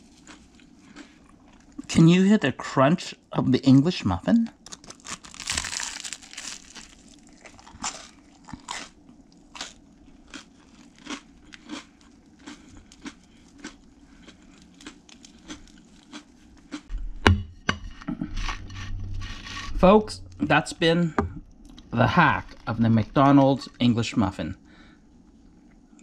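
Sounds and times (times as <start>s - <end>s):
person chewing crisp food: 0.0s - 1.9s, 4.6s - 16.9s.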